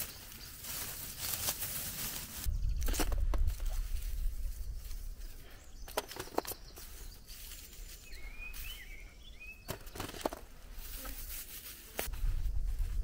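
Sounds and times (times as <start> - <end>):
bird chirping: 2.4 - 3.2, 4.0 - 10.2.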